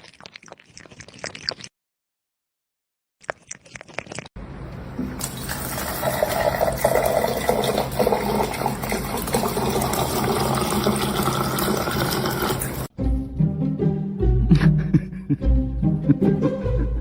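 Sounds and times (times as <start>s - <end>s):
water running: 4.7s - 12.9s.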